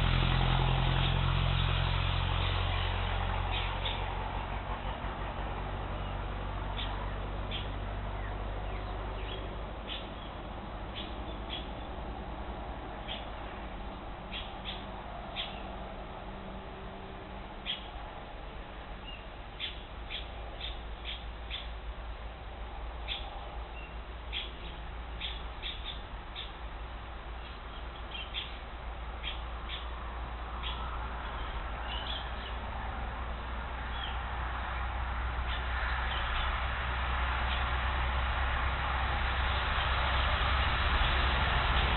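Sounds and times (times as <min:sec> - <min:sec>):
steady low rumble: 0:00.0 - 0:41.9.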